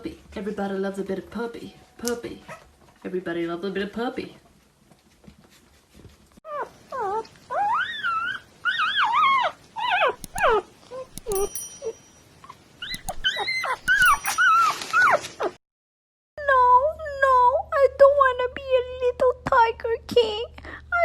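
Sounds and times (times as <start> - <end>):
puppy whining and whimpering: 6.5 - 10.6
sharp clicks: 10.2 - 12.0, 12.9 - 14.4.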